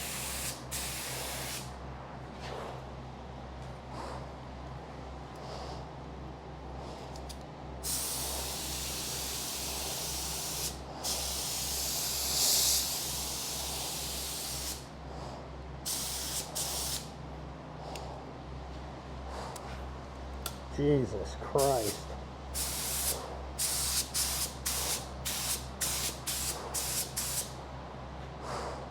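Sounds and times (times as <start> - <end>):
paint spray gun hissing: 0.0 - 1.7, 7.8 - 14.9, 15.9 - 17.1, 21.6 - 22.0, 22.6 - 27.5.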